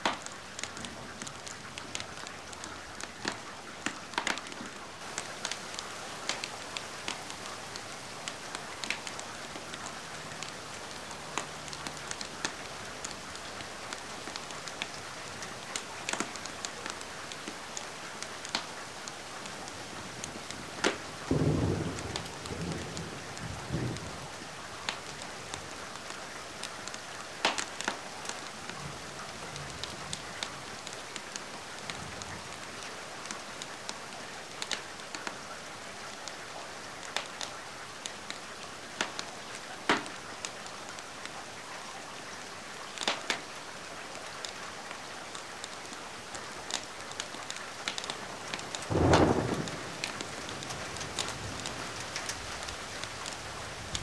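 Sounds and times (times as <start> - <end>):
wood fire crackling and popping: 0.0 - 24.1, 24.8 - 28.8, 39.0 - 41.0, 43.0 - 43.5, 45.3 - 54.0
steady rain: 0.0 - 54.0
thunder rolling: 48.9 - 52.7.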